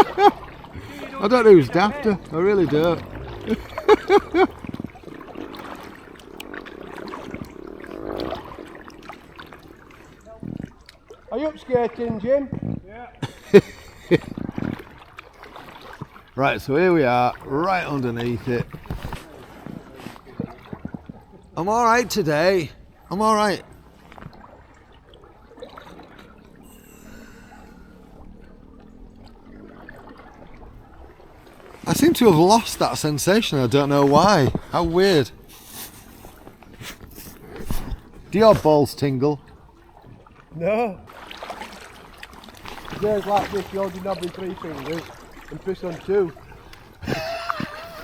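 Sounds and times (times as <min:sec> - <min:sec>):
water dripping and splashing: 0:00.0 - 0:48.0
small ticks: 0:04.7 - 0:11.0.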